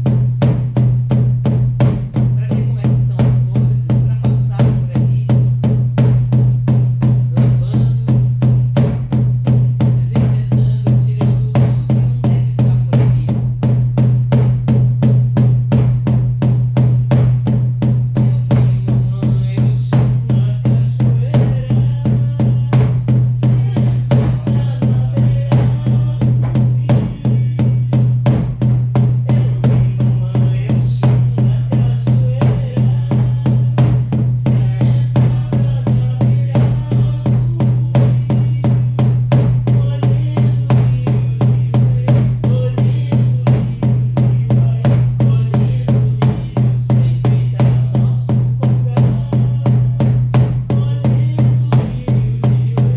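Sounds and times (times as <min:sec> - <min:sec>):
deep drums beating: 0:00.0 - 0:52.9
wordless singing: 0:09.9 - 0:13.5, 0:18.2 - 0:28.4, 0:29.2 - 0:52.9.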